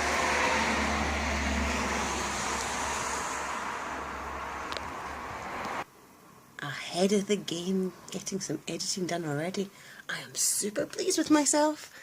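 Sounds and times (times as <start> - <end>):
car driving past: 0.0 - 5.9.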